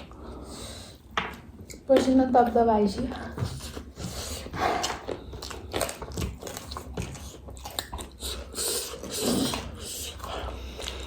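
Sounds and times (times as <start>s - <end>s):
crunchy snack chewing: 4.8s - 11.0s.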